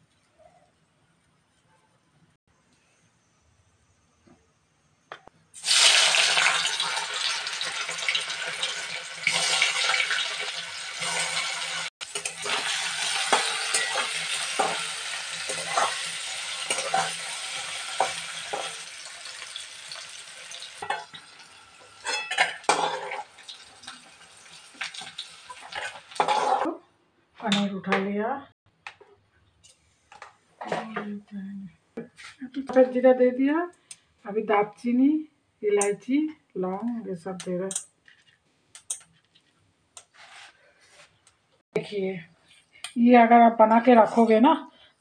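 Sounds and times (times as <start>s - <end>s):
cheese sizzling in hot oil: 5.6s - 26.6s
spatula scraping and knocking pan: 11.0s - 18.9s, 24.7s - 26.7s.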